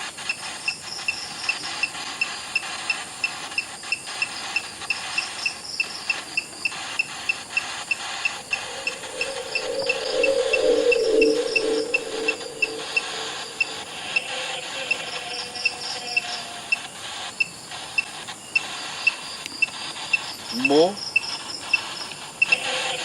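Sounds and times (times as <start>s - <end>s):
low hum: 8.4s - 14.3s
high insect hiss: 8.5s - 14.3s
cricket chirping: 8.5s - 14.4s.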